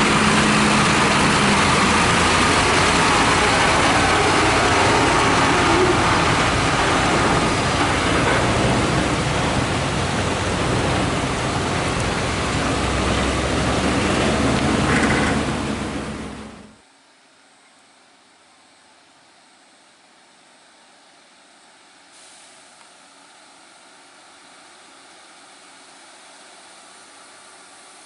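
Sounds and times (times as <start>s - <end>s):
diesel truck engine running: 0.0s - 16.8s
loud rushing noise: 0.0s - 16.8s.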